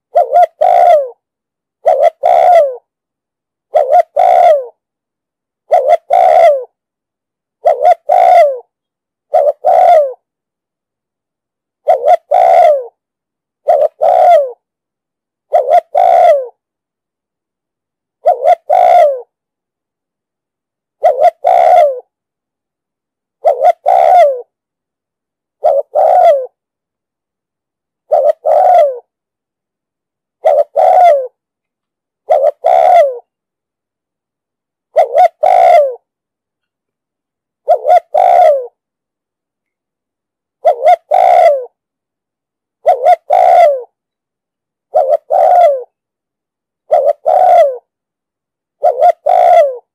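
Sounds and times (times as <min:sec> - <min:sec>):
dove cooing: 0:00.0 - 0:01.2, 0:01.8 - 0:02.9, 0:03.7 - 0:04.8, 0:05.7 - 0:06.8, 0:07.6 - 0:08.7, 0:09.3 - 0:10.2, 0:11.8 - 0:13.0, 0:13.6 - 0:14.6, 0:15.5 - 0:16.6, 0:18.2 - 0:19.3, 0:21.0 - 0:22.1, 0:23.4 - 0:24.5, 0:25.6 - 0:26.6, 0:28.1 - 0:29.1, 0:30.4 - 0:31.4, 0:32.2 - 0:33.3, 0:34.9 - 0:36.1, 0:37.6 - 0:38.8, 0:40.6 - 0:41.8, 0:42.8 - 0:44.0, 0:44.9 - 0:46.0, 0:46.9 - 0:47.9, 0:48.8 - 0:49.9.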